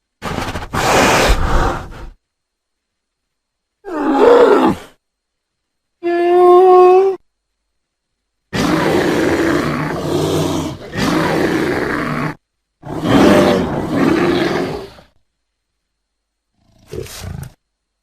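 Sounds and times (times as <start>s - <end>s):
bear growling: 8.5s - 15.2s, 16.5s - 17.6s.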